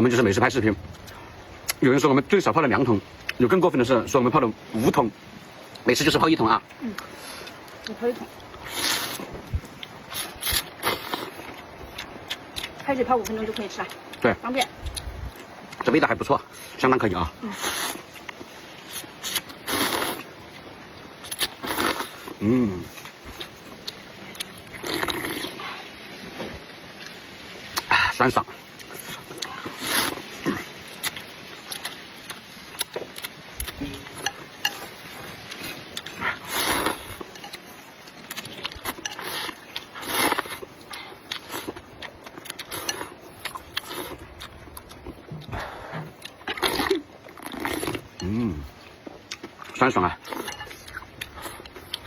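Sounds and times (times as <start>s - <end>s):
noodles being slurped and chewed: 6.9s - 12.8s, 17.5s - 20.4s, 21.2s - 25.9s, 28.8s - 52.0s
person slurping noodles: 8.6s - 9.3s, 17.4s - 18.1s, 18.9s - 20.3s, 21.3s - 23.0s, 24.8s - 25.8s, 29.5s - 30.7s, 36.0s - 37.2s
person humming: 22.4s - 22.9s, 48.2s - 48.7s.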